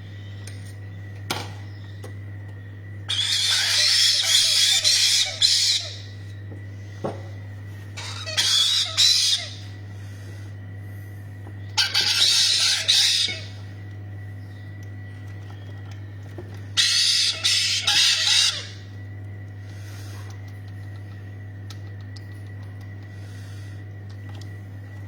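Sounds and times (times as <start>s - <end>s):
steady low hum: 0.0s - 25.0s
parrots squawking: 3.1s - 6.2s, 8.0s - 9.7s, 11.8s - 13.6s, 16.8s - 18.9s.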